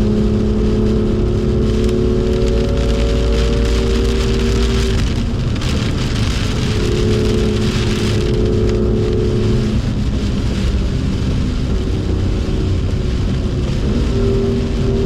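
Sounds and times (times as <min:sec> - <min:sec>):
car engine running: 0:00.0 - 0:15.0
heavy rain: 0:00.0 - 0:15.0.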